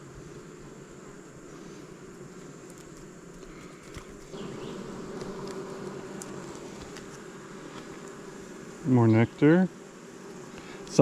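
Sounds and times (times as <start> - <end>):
bees buzzing: 0.0 - 11.0
hive frames clicking: 2.0 - 8.7.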